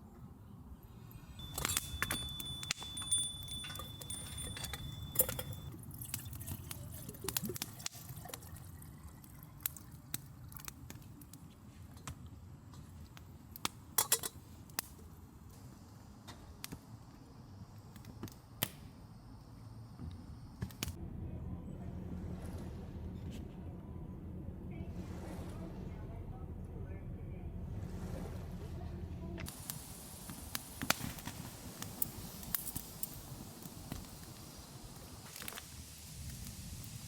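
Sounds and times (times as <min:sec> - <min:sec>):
high ringing tone: 0:01.3 - 0:05.7
small hard objects clinking: 0:01.4 - 0:06.5
low steady rumble: 0:20.9 - 0:29.5.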